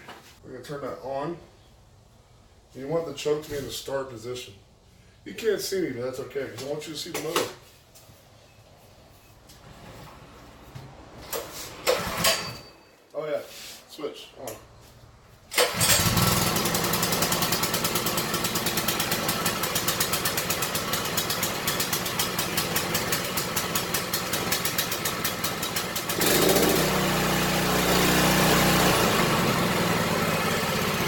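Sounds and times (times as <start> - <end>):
small engine running: 15.6 - 31.0.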